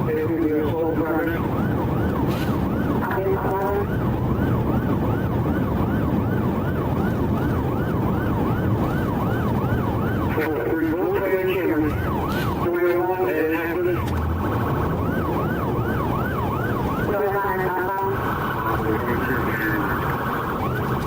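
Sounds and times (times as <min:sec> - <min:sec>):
police siren yelping: 0:00.0 - 0:21.0
vehicle engine and road noise: 0:00.0 - 0:21.0.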